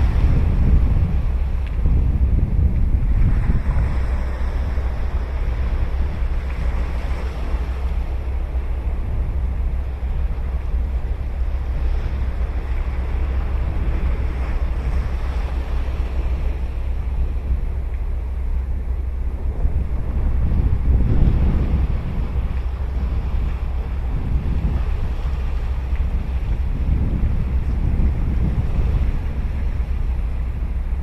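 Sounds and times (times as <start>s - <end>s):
ocean waves breaking: 0.0s - 31.0s
wind rumble on microphone: 0.0s - 31.0s.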